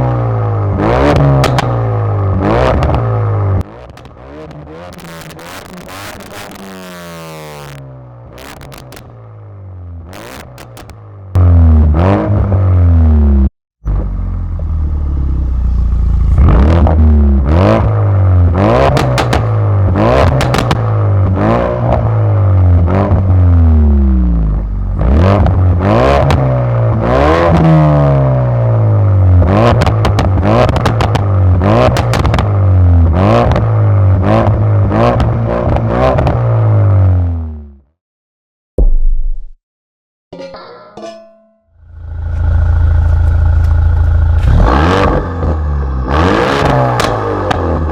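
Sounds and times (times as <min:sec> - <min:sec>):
car engine revving: 0:00.0 - 0:09.3, 0:10.0 - 0:37.5, 0:41.9 - 0:47.9
sharp exhaust cracks: 0:03.6 - 0:09.3, 0:10.1 - 0:11.5, 0:18.8 - 0:21.4, 0:41.9 - 0:47.9.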